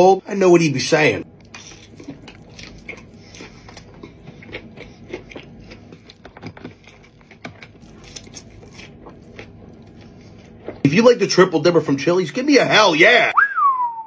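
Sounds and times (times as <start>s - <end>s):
person chewing food: 1.3s - 10.8s.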